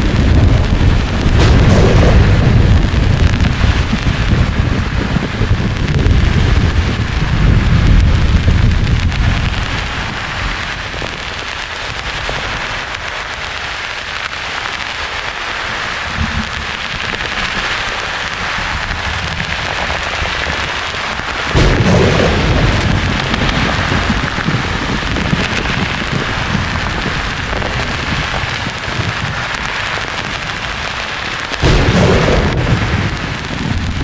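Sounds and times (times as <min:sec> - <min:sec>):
rolling thunder: 0:00.0 - 0:11.3, 0:15.9 - 0:30.8, 0:31.6 - 0:34.0
rain hiss: 0:00.0 - 0:34.0.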